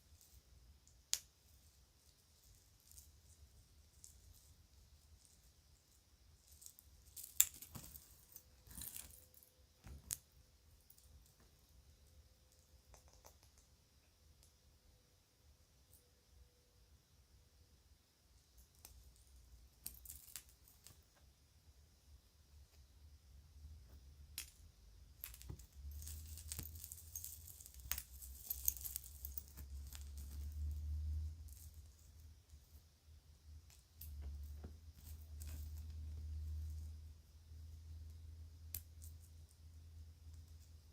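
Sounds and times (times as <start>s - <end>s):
jewelry clinking and jangling: 1.4s - 11.4s, 18.4s - 21.1s, 24.2s - 32.8s, 33.5s - 37.1s.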